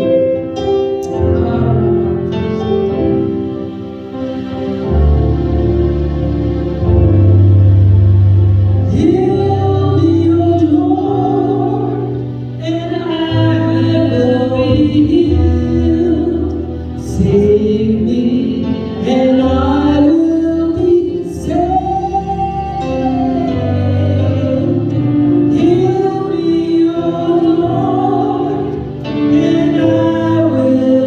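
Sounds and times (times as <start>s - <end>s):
gospel singing voice: 0.0s - 3.7s, 8.8s - 31.0s
keyboard and bass chords: 0.0s - 31.0s.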